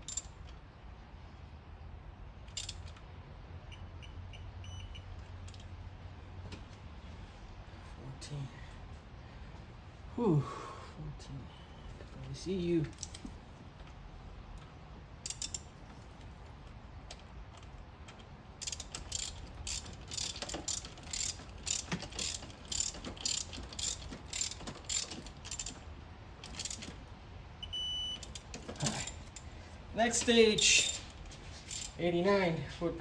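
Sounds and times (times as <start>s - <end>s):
socket ratchet clicking: 0.0s - 0.4s, 2.5s - 3.1s, 12.9s - 13.3s, 15.2s - 15.7s, 18.6s - 27.0s, 28.2s - 29.5s, 31.7s - 32.0s
short electronic beep: 27.6s - 28.2s.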